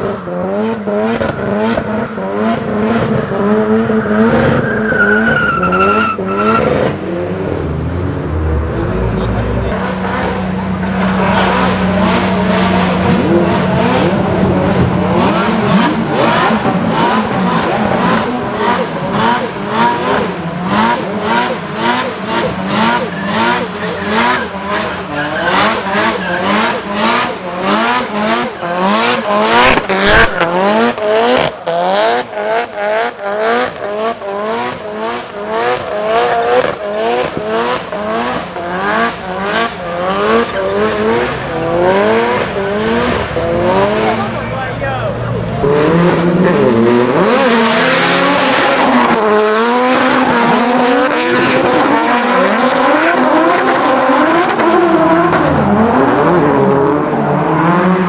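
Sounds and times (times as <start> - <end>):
car engine revving hard: 0.0 - 58.0
tyres squealing: 19.5 - 31.5.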